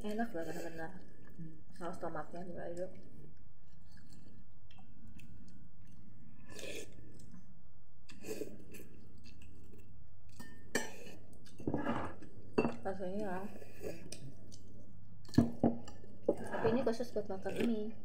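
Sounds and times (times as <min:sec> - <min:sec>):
people chewing noodles: 0:03.0 - 0:12.6, 0:13.2 - 0:17.9.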